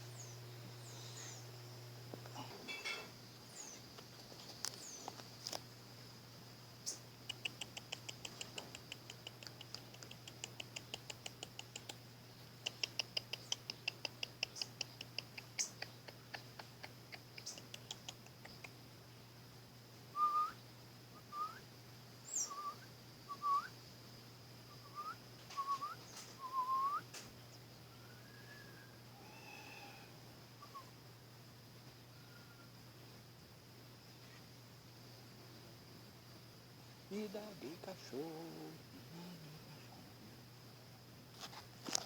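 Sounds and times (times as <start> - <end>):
bird clicking calls: 6.8 - 12.0, 12.6 - 18.8
bird whistling upward notes: 22.3 - 23.7, 24.9 - 27.0.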